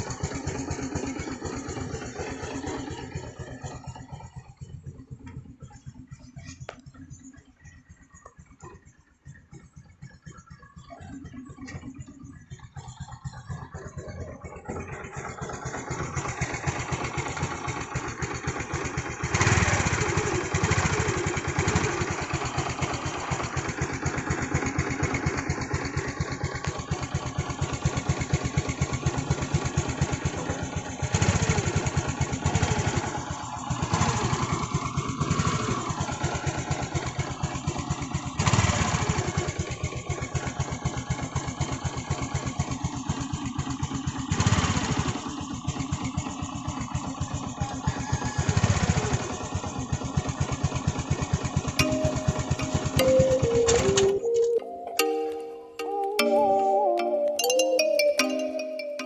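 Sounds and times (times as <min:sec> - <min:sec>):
scooter engine running: 0:00.0 - 0:59.0
throttle blips: 0:51.8 - 0:59.0.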